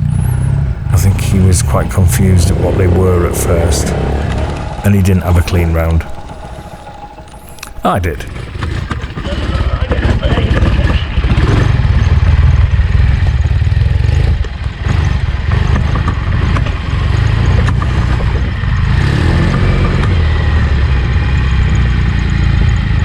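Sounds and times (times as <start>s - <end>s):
motorcycle engine low revs: 0.0s - 4.8s.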